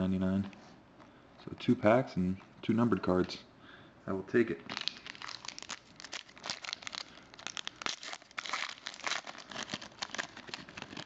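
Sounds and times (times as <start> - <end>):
plastic wrapper crinkling: 4.7 - 11.0.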